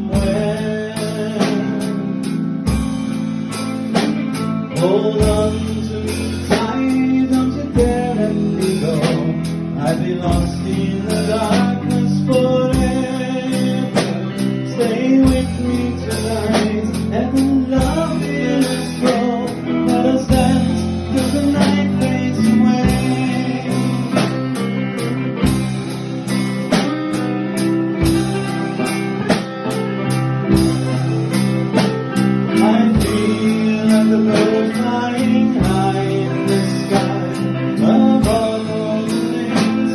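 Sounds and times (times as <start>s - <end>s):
person singing: 0.0s - 25.6s, 30.5s - 39.9s
bass guitar: 0.0s - 39.9s
drums: 0.0s - 39.9s
electric guitar: 0.0s - 39.9s.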